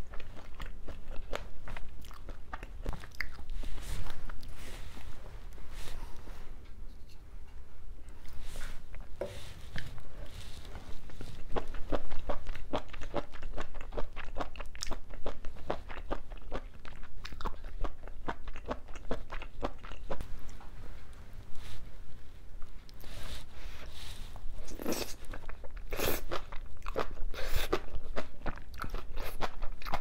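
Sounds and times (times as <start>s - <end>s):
crisp chewing crunches: 24.6s - 30.0s.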